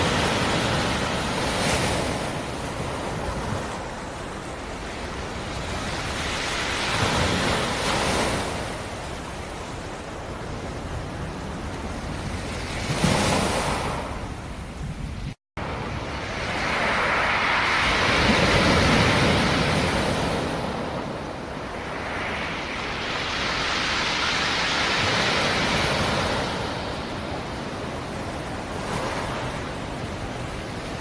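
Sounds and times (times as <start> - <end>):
sea surf waves breaking: 15.6 - 31.0.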